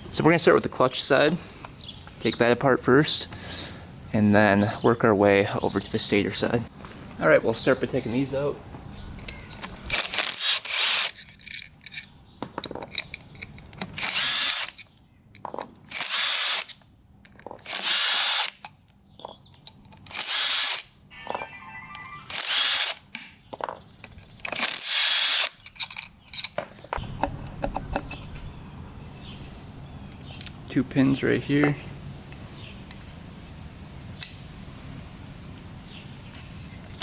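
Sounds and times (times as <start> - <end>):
bolts and tools clinking: 11.0 - 16.0, 25.6 - 28.5.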